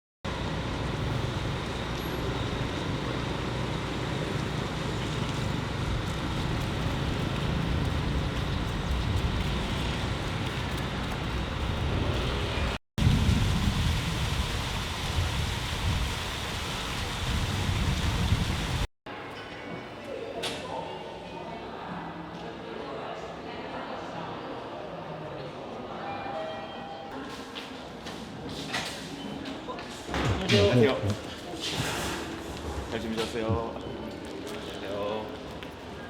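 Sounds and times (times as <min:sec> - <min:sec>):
vehicle engine and road noise: 0:00.3 - 0:12.8.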